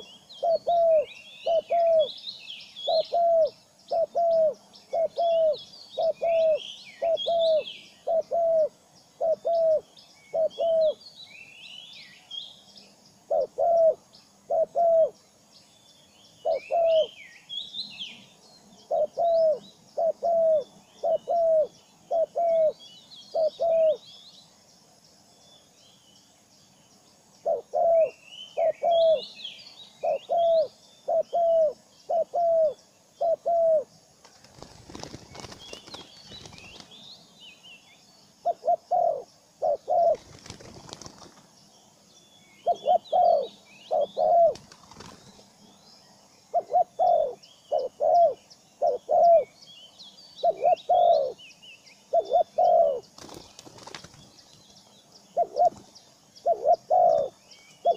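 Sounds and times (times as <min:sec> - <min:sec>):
low arched bird call: 0:00.0 - 0:11.0
twittering bird chirps: 0:42.1 - 0:57.9.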